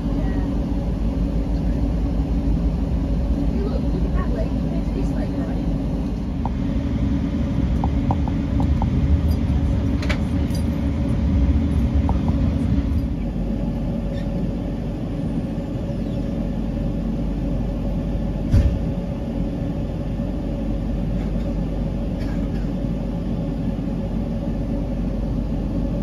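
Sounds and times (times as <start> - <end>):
diesel locomotive engine running: 0.0 - 26.0
train coaches rumbling on tracks: 0.0 - 26.0
sharp thump: 18.5 - 18.8.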